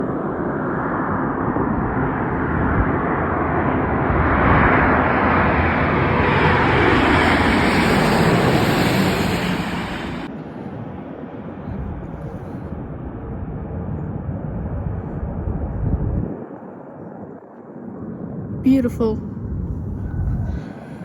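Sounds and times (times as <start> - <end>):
high fan whine: 0.0 - 13.3
jet engines roaring: 0.0 - 14.3.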